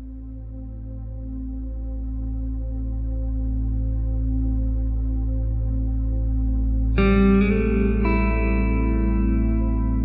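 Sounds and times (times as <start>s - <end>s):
ambient pad: 0.0s - 10.0s
echoing electric guitar notes: 7.0s - 10.0s.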